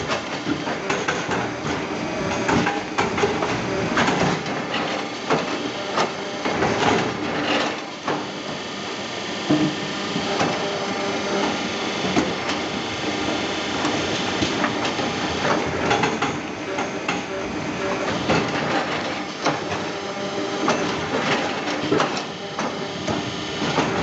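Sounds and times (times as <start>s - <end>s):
log debarker machine humming: 0.0s - 24.0s
sharp knocks and clatters: 15.6s - 17.3s.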